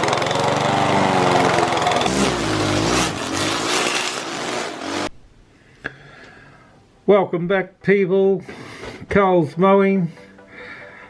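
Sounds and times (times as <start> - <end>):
small petrol engine revving: 0.0 - 5.1.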